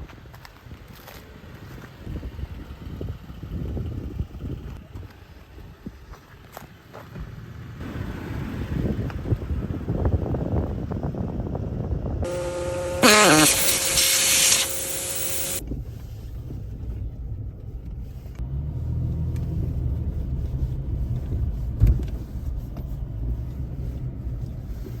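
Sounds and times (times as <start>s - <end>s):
truck engine running at low revs: 1.3s - 13.0s, 14.6s - 25.0s
loud hiss burst: 12.3s - 15.6s
steady tones: 12.3s - 15.6s.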